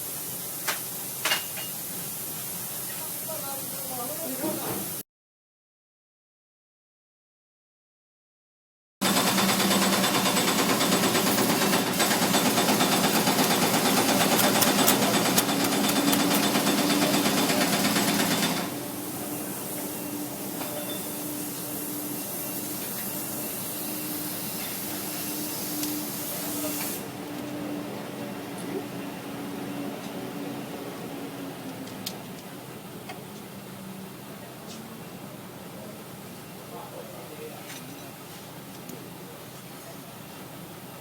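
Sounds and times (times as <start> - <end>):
engine clattering steadily: 9.0 - 18.8.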